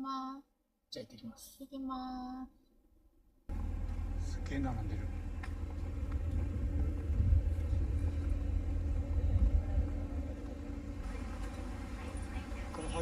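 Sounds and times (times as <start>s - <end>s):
car rumble from inside cabin: 3.5s - 13.0s
faint engine hum: 3.5s - 13.0s.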